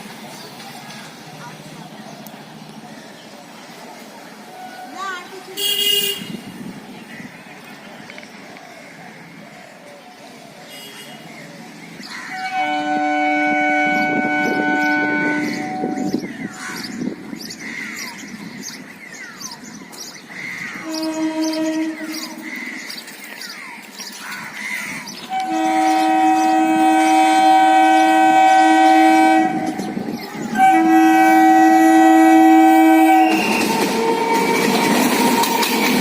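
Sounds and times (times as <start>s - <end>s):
train horn blasts: 5.6s - 6.5s, 12.3s - 16.2s, 20.8s - 22.6s, 25.3s - 35.9s.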